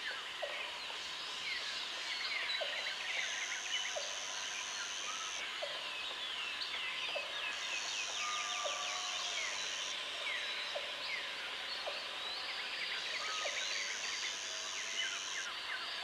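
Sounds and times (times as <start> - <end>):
insects: 0.0 - 16.0.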